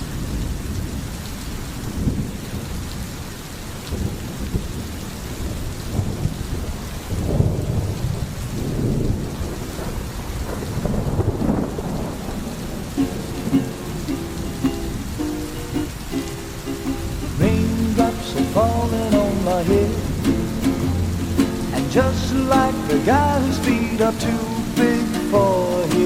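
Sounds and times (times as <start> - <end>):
steady rain falling: 0.0 - 26.0
thunder rumbling: 3.9 - 26.0
music: 13.0 - 26.0.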